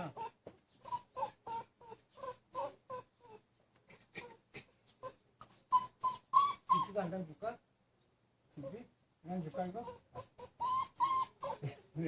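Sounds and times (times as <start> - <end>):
dog whimpering: 0.0 - 3.4, 5.0 - 7.1, 9.5 - 11.9.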